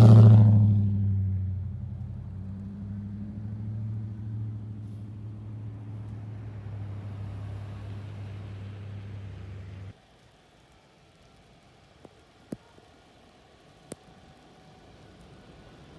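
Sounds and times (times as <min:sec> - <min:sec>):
vehicle engine humming: 0:00.0 - 0:10.6.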